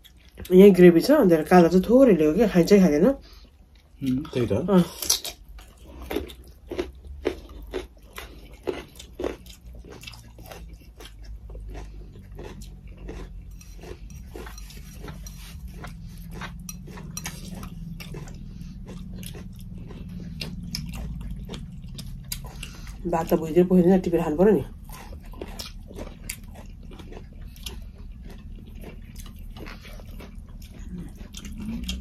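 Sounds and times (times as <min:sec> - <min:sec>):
low steady hum: 0:00.0 - 0:32.0
chewing and wet mouth clicks: 0:05.0 - 0:23.0, 0:24.8 - 0:32.0.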